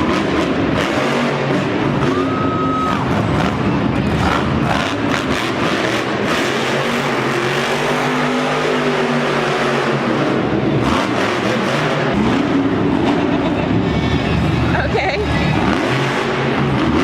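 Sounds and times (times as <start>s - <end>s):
arena crowd din: 0.0s - 7.9s, 8.7s - 17.0s
truck engine revving: 0.0s - 17.0s.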